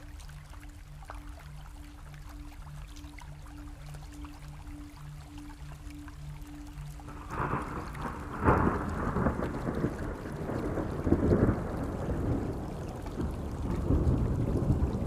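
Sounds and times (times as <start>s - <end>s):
steady rain: 0.0s - 15.0s
thunder rumbling: 7.1s - 15.0s.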